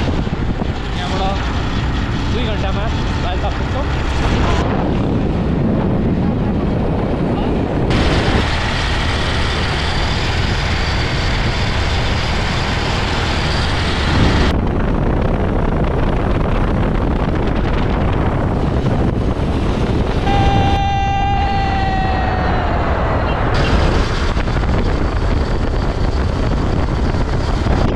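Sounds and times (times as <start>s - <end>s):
wind on microphone: 0.0s - 27.9s
motorcycle engine rumble: 14.5s - 27.8s
high tone sliding down: 20.2s - 23.6s.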